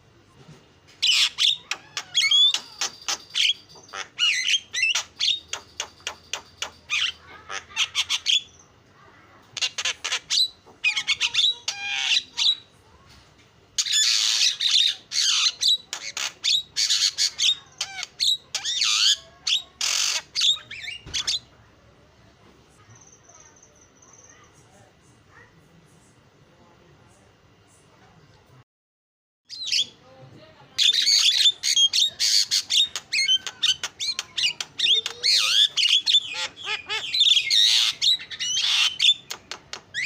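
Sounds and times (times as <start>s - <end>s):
bird singing harsh squawks and whistles: 1.0s - 8.7s, 9.6s - 12.7s, 13.8s - 21.5s, 29.5s - 30.0s, 30.8s - 40.0s.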